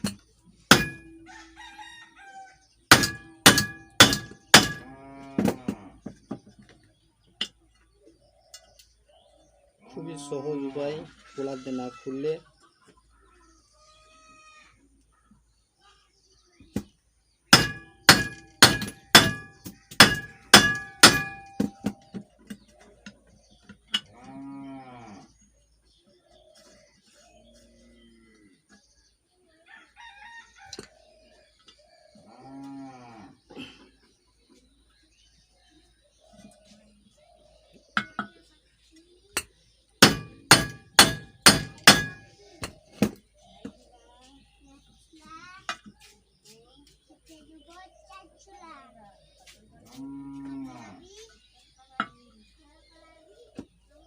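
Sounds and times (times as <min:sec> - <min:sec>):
hammer striking metal: 0:00.0 - 0:01.2, 0:02.9 - 0:04.9, 0:17.5 - 0:22.0, 0:40.0 - 0:42.3.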